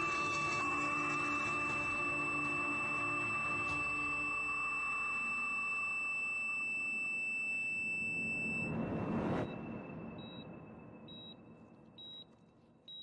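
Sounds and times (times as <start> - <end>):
heart monitor beeping: 0.0 - 8.7, 9.4 - 13.0
whoosh: 8.4 - 12.2.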